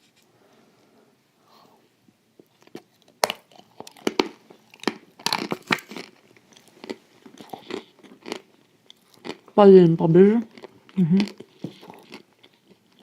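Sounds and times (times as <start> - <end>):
crunchy waffles being chewed: 2.4 - 9.6, 10.3 - 13.0.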